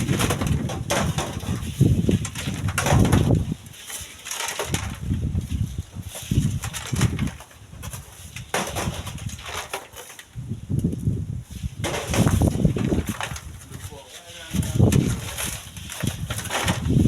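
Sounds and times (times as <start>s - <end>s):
wind buffeting microphone: 0.0s - 3.8s, 4.6s - 9.6s, 10.3s - 17.0s
windy hiss: 0.1s - 16.8s.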